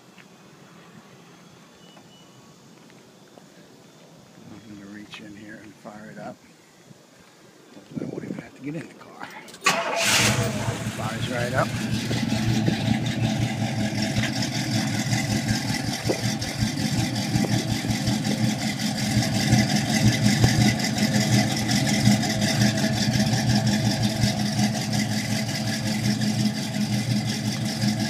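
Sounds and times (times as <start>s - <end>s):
car engine idling: 9.4s - 28.0s.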